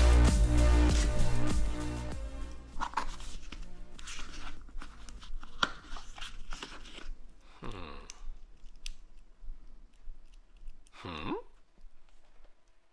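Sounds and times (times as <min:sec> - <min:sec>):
hands handling a plastic case: 0:02.7 - 0:07.2.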